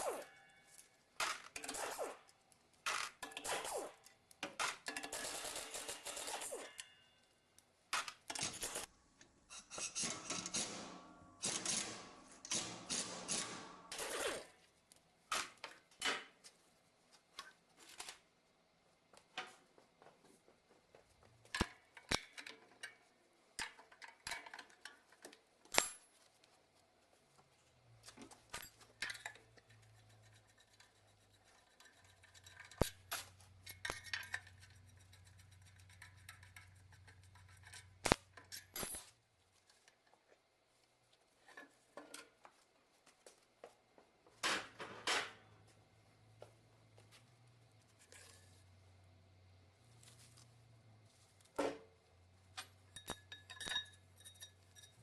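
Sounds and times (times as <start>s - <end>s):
metal tools clinking: 52.6s - 55.0s.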